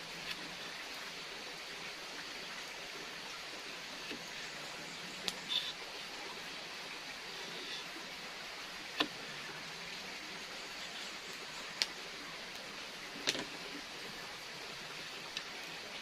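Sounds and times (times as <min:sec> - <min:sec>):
outdoor noise hiss: 0:00.0 - 0:16.0.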